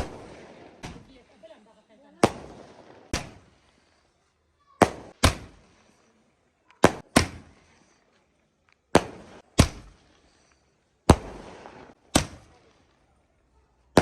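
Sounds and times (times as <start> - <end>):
firecrackers banging with echo: 0.0 - 1.4, 2.1 - 4.0, 4.8 - 6.1, 6.8 - 8.1, 8.9 - 12.9.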